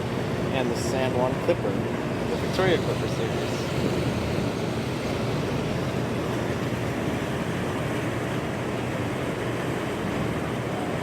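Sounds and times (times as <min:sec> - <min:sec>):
ferry engine hum: 0:00.0 - 0:11.0
rush of wind and water: 0:00.0 - 0:11.0.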